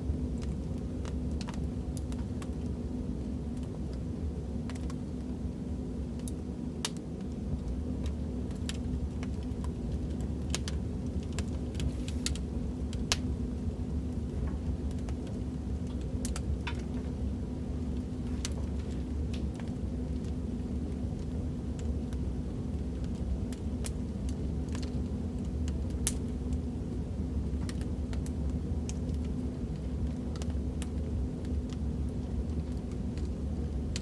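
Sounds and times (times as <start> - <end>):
fire flames rumbling: 0.0 - 34.0
wood fire popping and snapping: 0.0 - 34.0.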